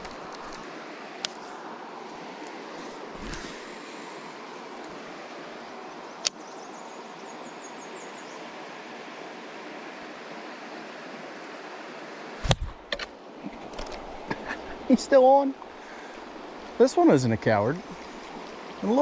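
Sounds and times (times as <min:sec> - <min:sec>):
river water rushing: 0:00.0 - 0:06.2, 0:06.8 - 0:19.0
loud thump: 0:12.4 - 0:12.8.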